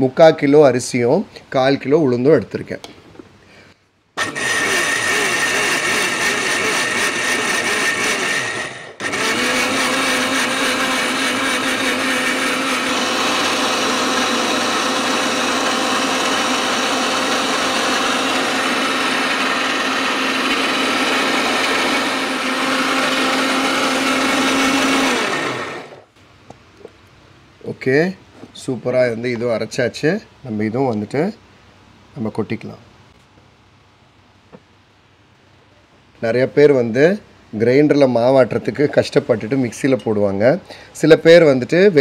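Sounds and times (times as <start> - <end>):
mixer grinder motor grinding: 4.2 - 26.1.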